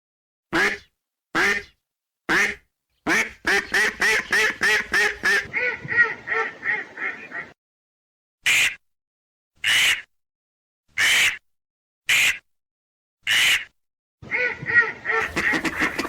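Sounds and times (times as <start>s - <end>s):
duck quacking: 0.6s - 1.7s, 2.3s - 7.6s, 8.5s - 8.8s, 9.6s - 10.1s, 13.3s - 16.0s.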